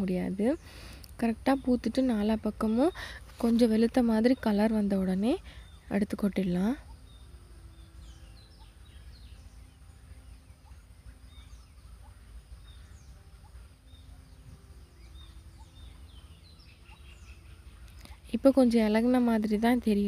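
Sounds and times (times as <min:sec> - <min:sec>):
low hum: 0:00.0 - 0:20.0
small birds chirping: 0:00.0 - 0:20.0.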